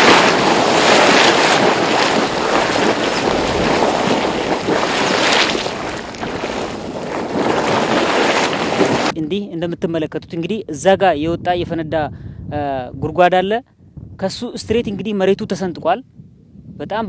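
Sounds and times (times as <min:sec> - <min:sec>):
water churning and bubbling: 0:00.0 - 0:09.2.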